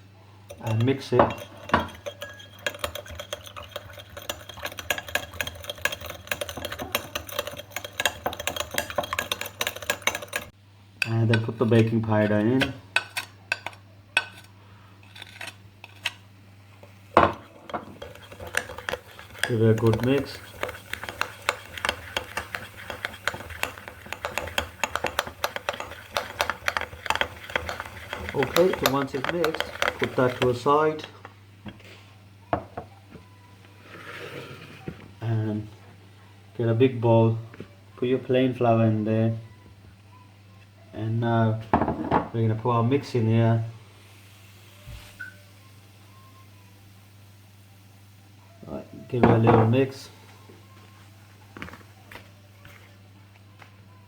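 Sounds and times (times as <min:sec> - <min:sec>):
utensil clinking against cup: 0:00.5 - 0:14.4, 0:17.2 - 0:30.7.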